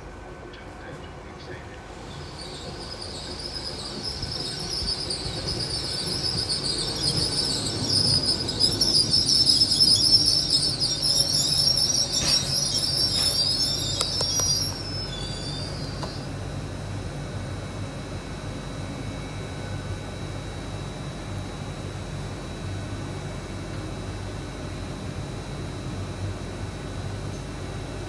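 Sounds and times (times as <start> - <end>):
train rumbling: 0.0 - 28.0
high-pitched brake squeal: 2.1 - 16.4.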